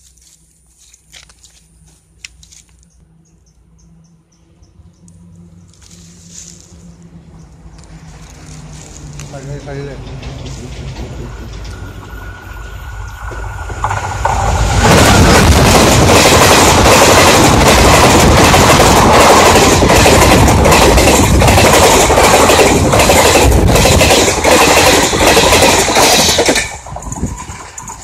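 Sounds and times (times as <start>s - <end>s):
passenger train passing: 3.1s - 28.0s
wheels clattering on rails: 7.7s - 28.0s.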